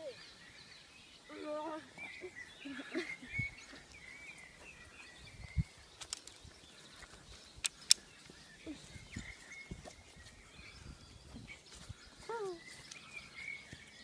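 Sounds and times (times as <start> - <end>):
birds chirping: 0.0 - 14.0
sharp clicks: 6.0 - 6.4, 7.6 - 8.1.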